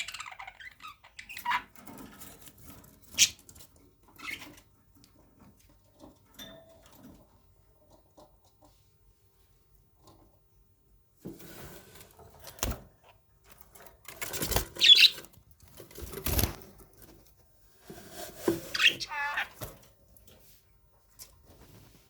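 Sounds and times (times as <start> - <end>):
parrot chirping: 0.0 - 1.7, 14.8 - 15.2, 18.7 - 19.5.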